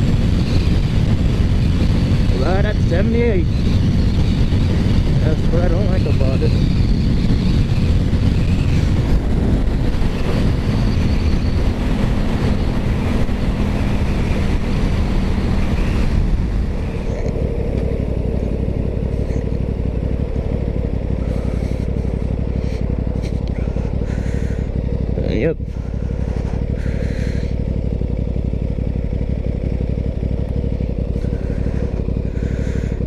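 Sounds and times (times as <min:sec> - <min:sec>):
wind rush over microphone: 0:00.0 - 0:17.4
motorcycle engine running: 0:00.0 - 0:33.0.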